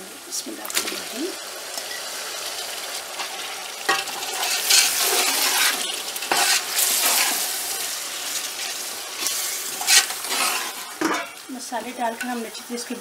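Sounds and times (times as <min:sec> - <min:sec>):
food sizzling in hot oil: 0:00.0 - 0:13.0
metal spatula scraping a pot: 0:03.2 - 0:07.8, 0:08.6 - 0:11.4.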